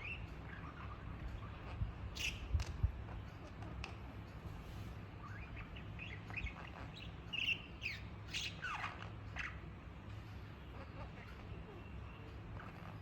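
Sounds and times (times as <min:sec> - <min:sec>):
budgerigar chirping and squeaking: 0:00.0 - 0:03.5, 0:05.2 - 0:09.6, 0:10.7 - 0:13.0.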